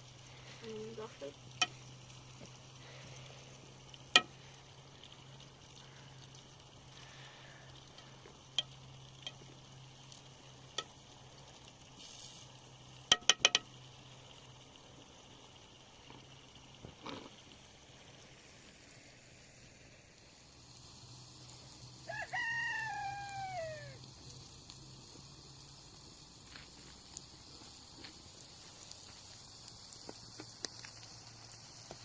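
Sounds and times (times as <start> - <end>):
rooster crowing: 22.0 - 24.0.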